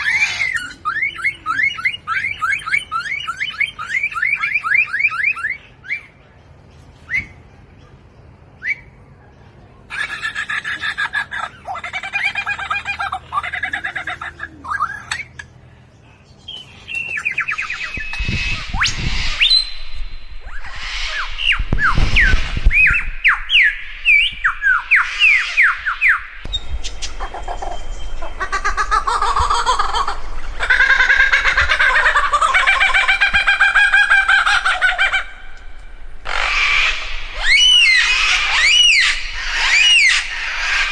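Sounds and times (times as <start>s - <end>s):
songbird whistling and warbling: 0.0s - 6.2s, 7.0s - 7.5s, 8.6s - 9.1s, 11.7s - 15.5s, 16.3s - 35.6s, 36.3s - 40.9s
bird pulsed chattering call: 16.5s - 33.3s.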